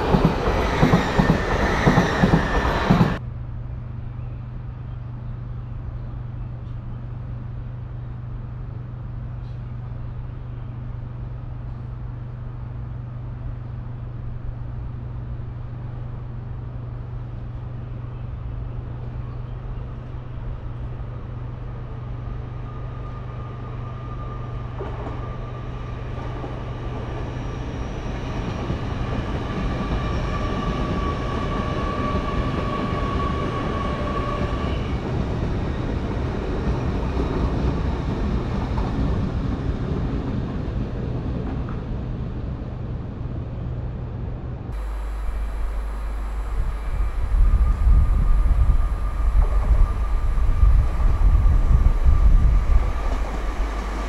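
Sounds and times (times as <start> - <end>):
train approaching: 0.0 - 54.0
steady low hum: 43.0 - 54.0
steady high ringing tone: 44.8 - 54.0.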